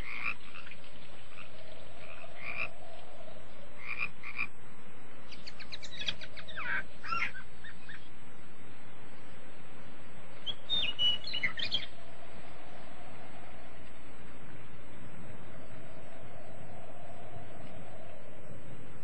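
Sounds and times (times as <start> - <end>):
steady background hiss: 0.0 - 19.0
birds chirping: 5.2 - 16.2.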